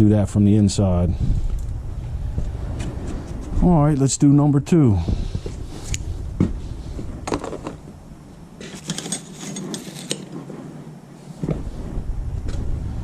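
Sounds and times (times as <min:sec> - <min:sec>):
hand tools clicking and knocking: 0:08.6 - 0:10.4.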